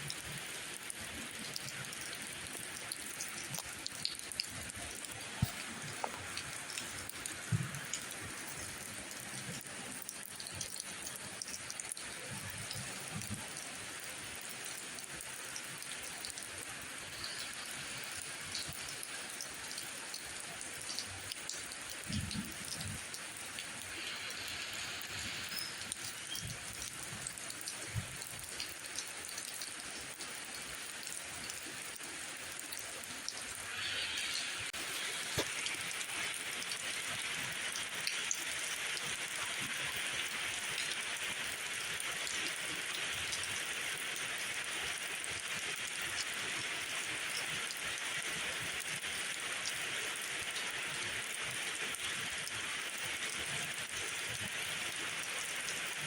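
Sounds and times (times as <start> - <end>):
rain drop ticks: 0.0 - 56.0
steady rain falling: 0.0 - 56.0
bright dense hiss: 23.8 - 26.6, 33.4 - 42.9.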